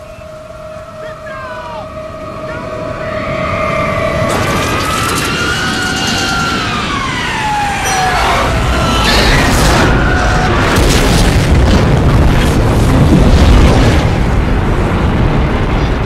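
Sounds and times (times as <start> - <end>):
jet whine falling in pitch: 0.0 - 10.9
low rumble with crashing: 1.9 - 16.0.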